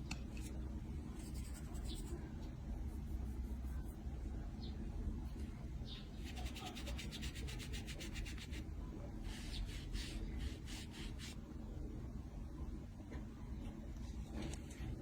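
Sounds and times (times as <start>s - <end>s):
steady low hum: 0.0s - 15.0s
quick scratching strokes: 1.2s - 2.2s, 6.1s - 8.6s, 9.2s - 11.4s.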